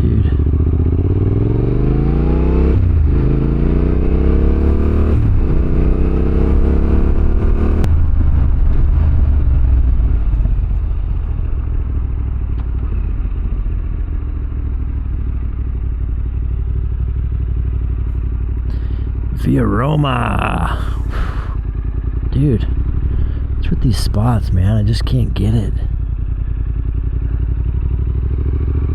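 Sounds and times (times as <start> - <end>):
motorcycle engine accelerating: 0.0 - 28.9.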